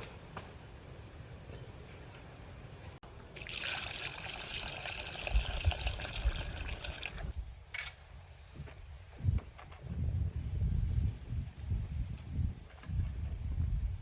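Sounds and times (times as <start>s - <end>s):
water running: 3.3s - 7.3s.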